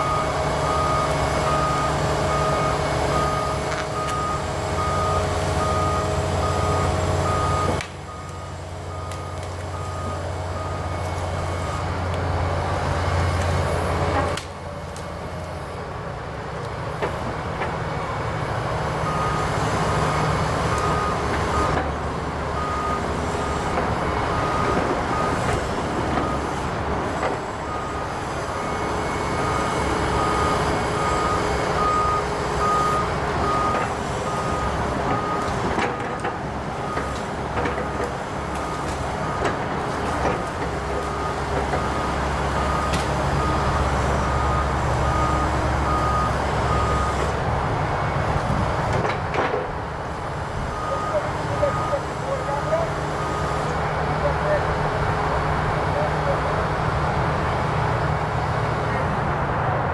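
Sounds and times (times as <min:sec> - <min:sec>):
excavator diesel engine running: 0:00.0 - 0:59.9
travel alarm beeping: 0:27.6 - 0:35.5, 0:41.1 - 0:47.3, 0:50.7 - 0:53.6.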